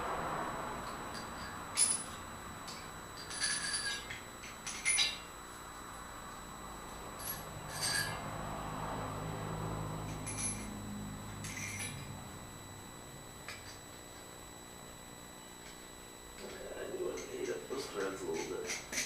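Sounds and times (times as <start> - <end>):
steel parts clinking and rattling: 1.1 - 5.3, 7.2 - 8.3, 10.1 - 10.8, 11.4 - 12.1, 17.2 - 19.0.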